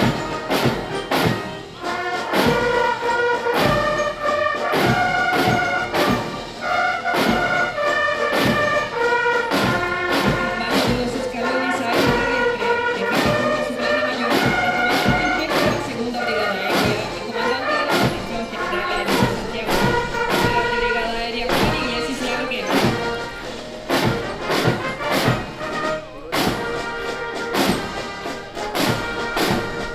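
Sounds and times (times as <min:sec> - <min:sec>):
brass band playing a march: 0:00.0 - 0:29.9
bass drum beat: 0:09.6 - 0:13.7, 0:14.4 - 0:29.9.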